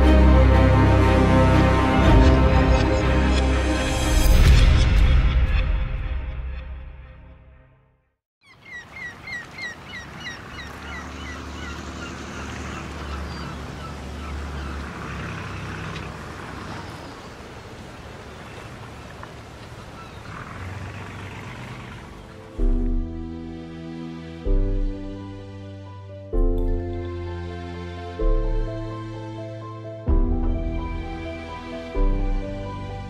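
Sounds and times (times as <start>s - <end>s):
bird calling falling notes: 8.4s - 22.5s
outdoor noise: 8.4s - 29.4s.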